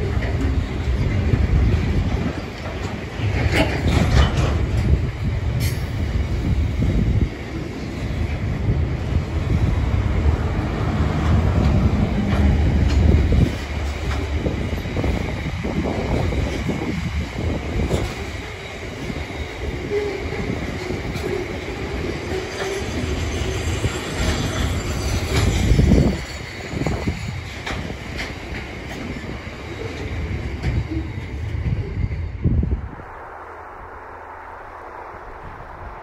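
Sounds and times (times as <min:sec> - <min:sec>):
wheels clacking over rail joints: 0:00.0 - 0:06.0, 0:09.7 - 0:31.6
train wheels rumbling on rails: 0:00.0 - 0:33.0.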